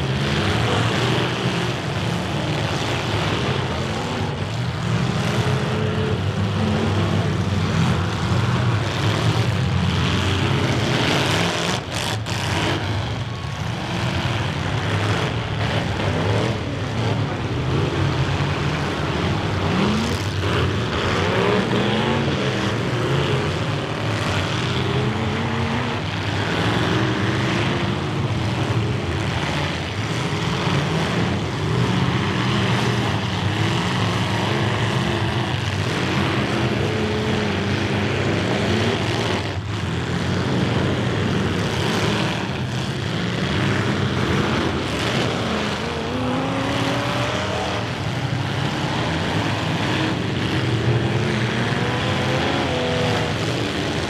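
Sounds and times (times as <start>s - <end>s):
car engines revving: 0.0s - 54.0s.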